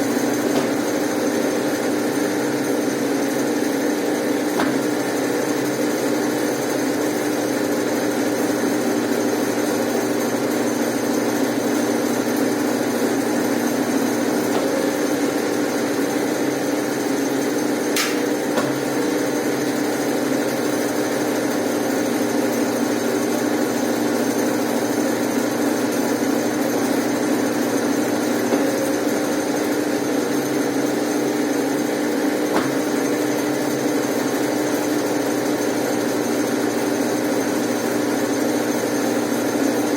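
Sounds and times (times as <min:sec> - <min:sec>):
washing machine motor humming: 0:00.0 - 0:39.9
short click: 0:18.0 - 0:18.2.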